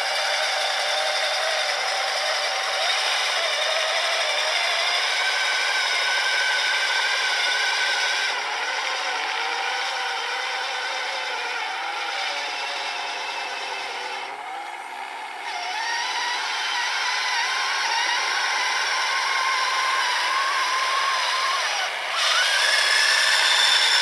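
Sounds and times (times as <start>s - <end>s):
small electric motors whining: 0.0s - 24.0s.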